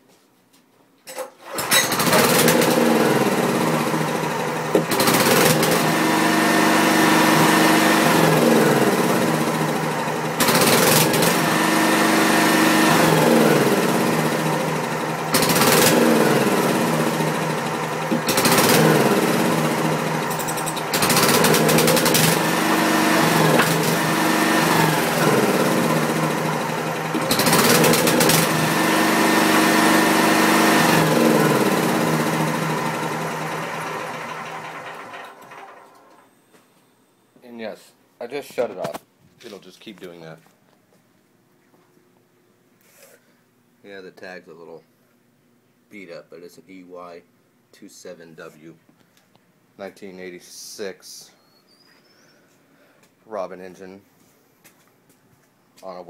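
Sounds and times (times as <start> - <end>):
small engine running unevenly: 1.4 - 36.3.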